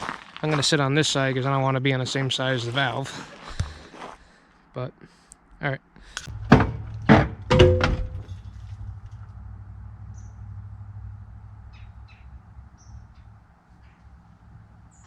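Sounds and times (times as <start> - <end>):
sharp clunks: 6.2 - 9.4
hydraulic pump humming: 6.3 - 14.8.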